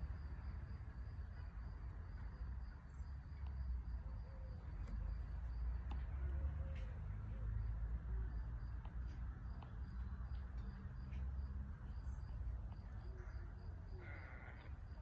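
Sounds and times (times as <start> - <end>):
insect chirping: 7.4 - 15.0.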